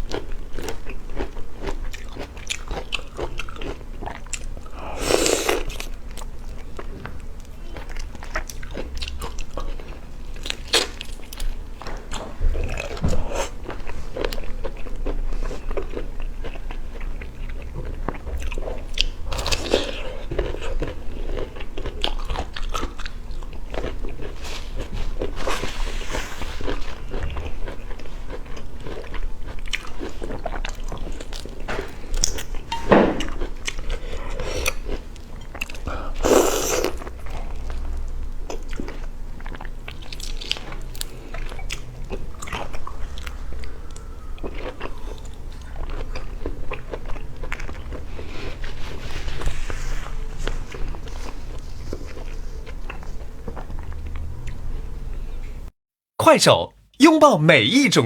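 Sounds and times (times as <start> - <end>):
crunching and chewing seafood: 0.0 - 55.4.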